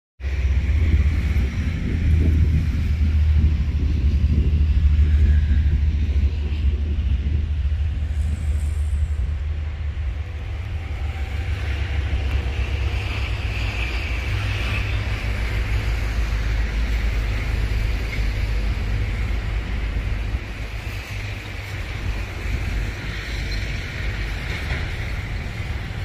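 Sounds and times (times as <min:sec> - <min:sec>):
freight train rumbling past: 0:00.2 - 0:26.0.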